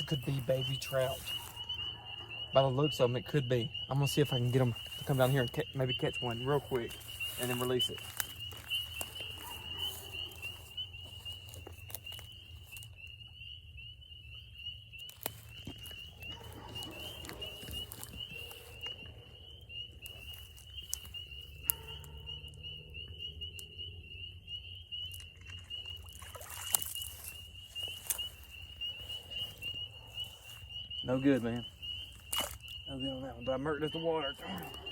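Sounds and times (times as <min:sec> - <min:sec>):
chorus of frogs peeping: 0:00.0 - 0:34.9
dip net splashing in water: 0:26.0 - 0:27.1.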